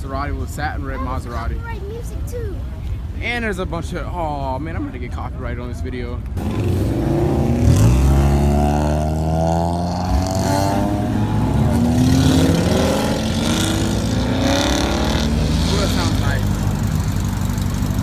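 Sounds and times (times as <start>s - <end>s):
cars accelerating past: 6.4s - 18.0s.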